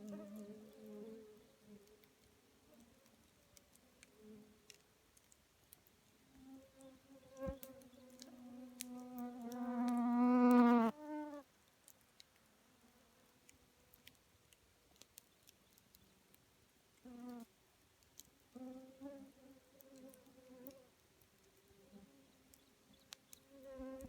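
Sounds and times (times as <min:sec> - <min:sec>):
campfire crackling and popping: 0:07.4 - 0:10.6, 0:13.9 - 0:16.5
flying insect buzzing: 0:07.4 - 0:11.4.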